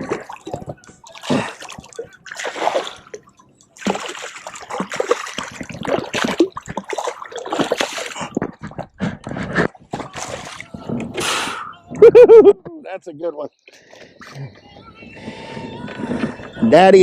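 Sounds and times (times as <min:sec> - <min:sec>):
fish thrashing and splashing: 0:00.0 - 0:11.3.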